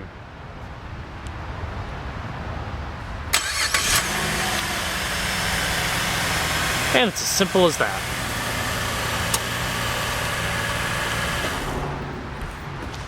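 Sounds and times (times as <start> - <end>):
car engine cranking and idling: 3.3 - 12.9.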